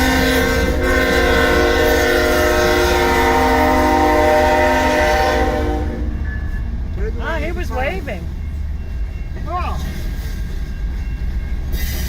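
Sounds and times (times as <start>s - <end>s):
locomotive air horn blast: 0.0s - 6.2s.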